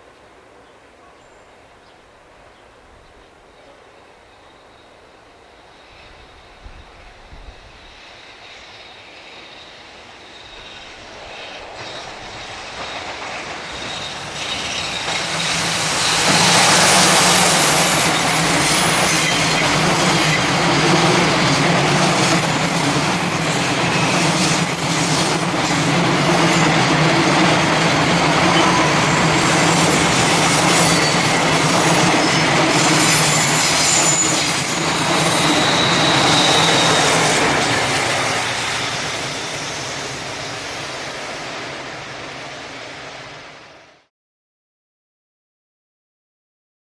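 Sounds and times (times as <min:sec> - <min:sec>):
train wheels rumbling on rails: 0:06.4 - 0:44.0
high-pitched wheel squeal: 0:13.7 - 0:40.2.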